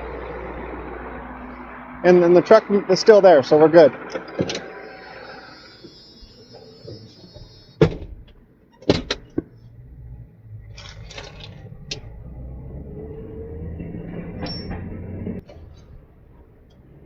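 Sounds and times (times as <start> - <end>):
truck engine rumbling: 0.0 - 17.0
metal clunks: 4.0 - 4.8, 6.8 - 9.6, 14.0 - 15.9.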